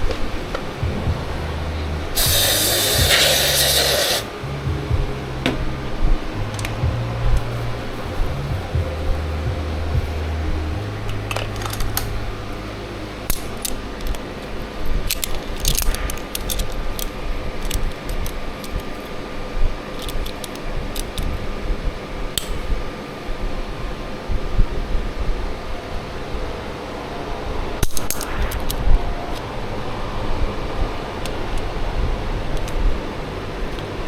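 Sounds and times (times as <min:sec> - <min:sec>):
steady mechanical hum: 0:00.0 - 0:34.0.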